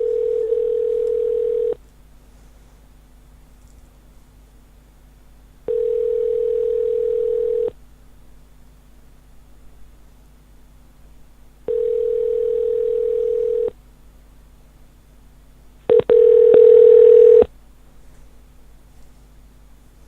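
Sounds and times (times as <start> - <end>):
telephone ringback tone: 0.0 - 1.8, 5.7 - 7.7, 11.7 - 13.7, 15.9 - 17.5.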